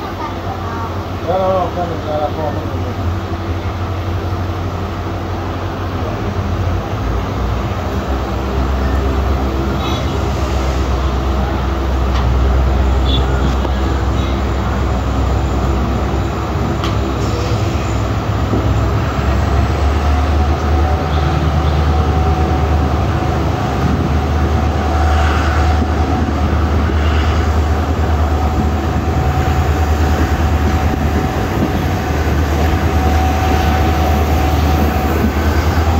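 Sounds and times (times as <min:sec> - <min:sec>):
train wheels rumbling on rail: 0:00.0 - 0:35.9.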